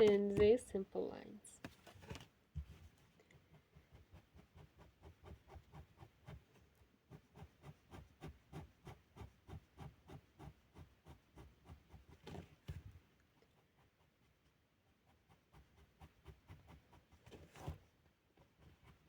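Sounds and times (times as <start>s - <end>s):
scrape and knock: 1.6s - 13.0s, 15.4s - 19.0s
pen strokes on paper: 2.7s - 12.7s, 13.6s - 19.0s.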